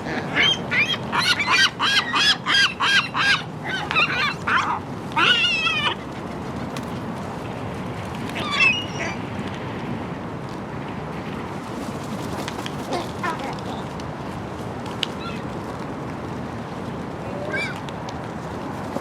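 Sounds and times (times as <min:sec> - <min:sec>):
gull squawking: 0:00.1 - 0:06.1, 0:08.4 - 0:09.2, 0:12.9 - 0:13.9.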